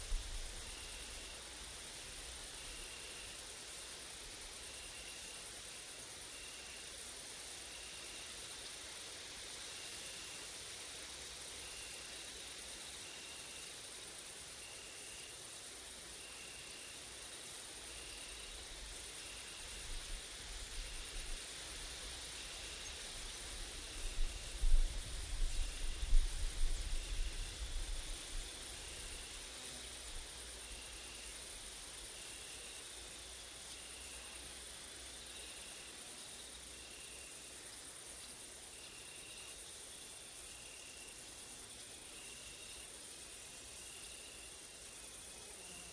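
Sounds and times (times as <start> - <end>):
insect chirping: 0.0 - 45.9
insects stridulating drone: 0.0 - 45.9.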